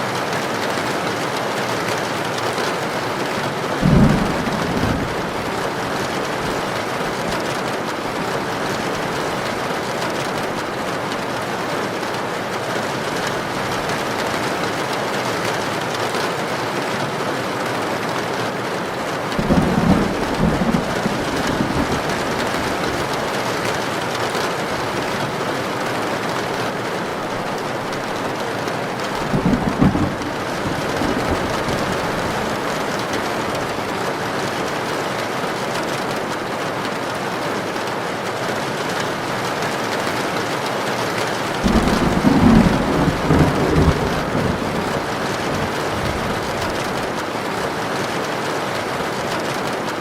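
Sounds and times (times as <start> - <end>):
heavy rain: 0.0 - 50.0
thunder rumble: 3.8 - 7.5, 19.3 - 23.4, 28.9 - 33.7, 41.6 - 47.2.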